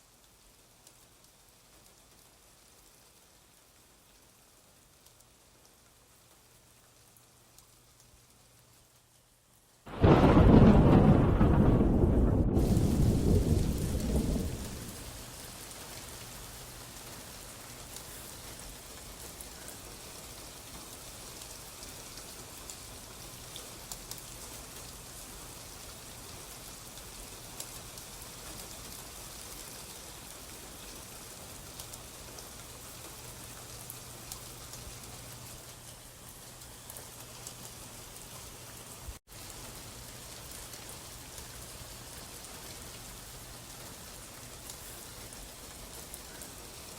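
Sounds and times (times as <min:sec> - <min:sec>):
steady rain hiss: 0:00.0 - 0:46.9
low thunder rumble: 0:09.9 - 0:15.2.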